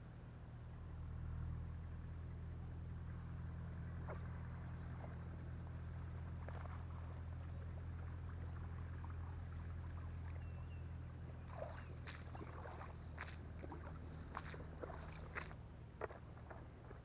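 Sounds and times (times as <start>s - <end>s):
low steady hum: 0.0s - 17.0s
water sloshing and splashing: 6.1s - 17.0s.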